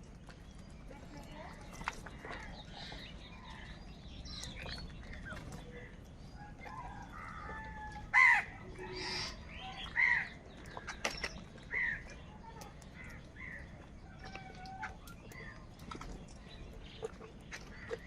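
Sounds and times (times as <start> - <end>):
crows cawing: 6.8 - 10.9, 11.7 - 12.1, 12.9 - 15.5.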